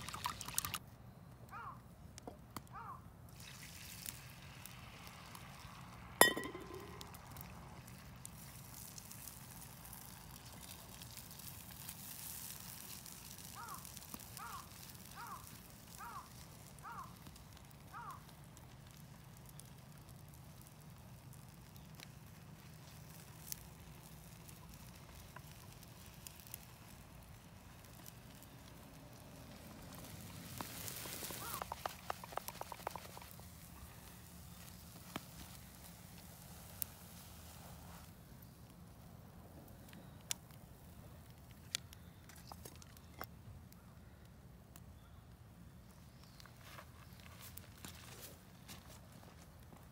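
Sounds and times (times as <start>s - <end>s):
campfire crackle: 0.0s - 49.9s.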